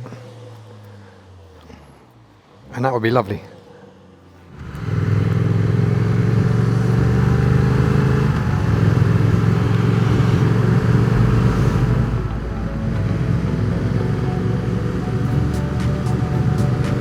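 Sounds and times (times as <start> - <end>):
road and wind noise: 0.0 - 17.0
motorcycle engine running: 4.4 - 17.0.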